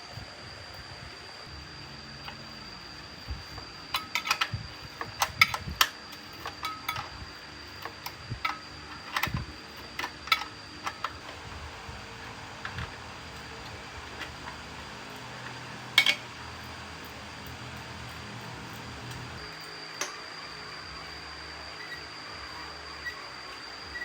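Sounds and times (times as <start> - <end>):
metal tools clicking and clinking: 3.9 - 7.2, 7.8 - 11.2, 15.4 - 16.7.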